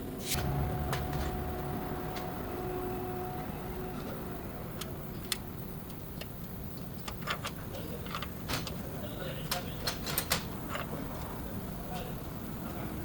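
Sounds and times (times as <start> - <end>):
low background rumble: 0.1 - 6.8.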